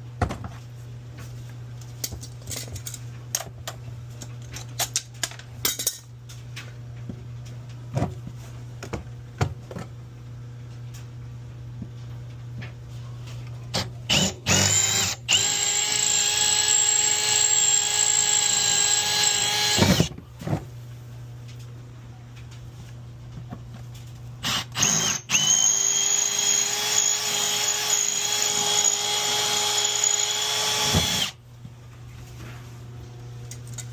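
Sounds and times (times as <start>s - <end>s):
power drill drilling: 14.1s - 20.1s, 24.4s - 31.4s.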